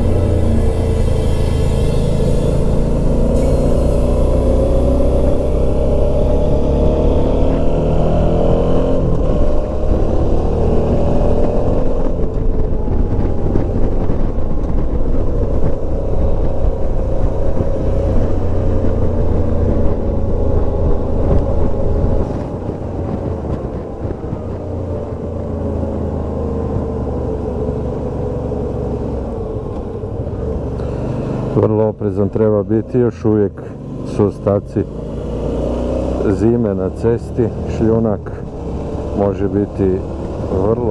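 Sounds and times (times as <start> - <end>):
motorcycle engine running: 0.0 - 31.6
rushing wind: 0.0 - 34.0.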